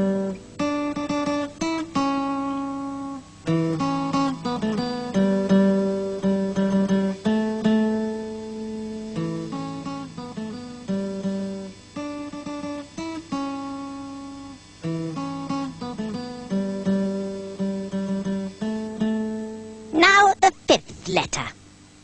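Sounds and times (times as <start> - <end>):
acoustic guitar: 0.0 - 21.6.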